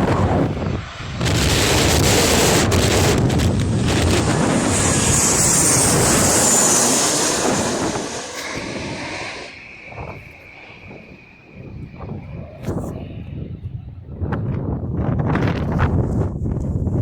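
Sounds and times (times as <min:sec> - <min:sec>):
jet airliner passing overhead: 0:00.0 - 0:15.2
faint steady whistle: 0:05.9 - 0:14.0.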